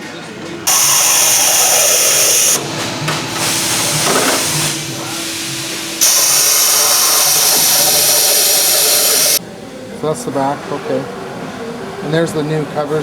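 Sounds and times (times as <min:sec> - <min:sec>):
compressed air hissing: 0:00.6 - 0:09.4
steady hum: 0:00.6 - 0:09.4.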